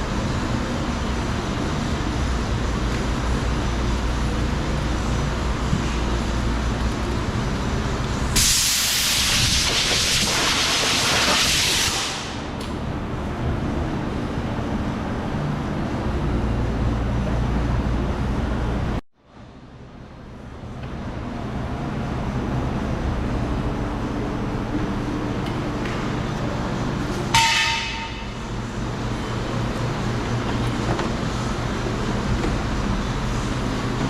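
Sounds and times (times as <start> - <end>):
compressed air hiss: 8.3 - 12.4.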